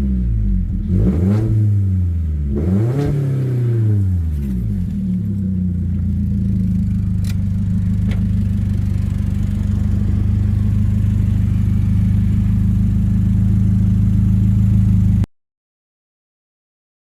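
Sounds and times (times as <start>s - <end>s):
car engine idling: 3.7s - 15.3s.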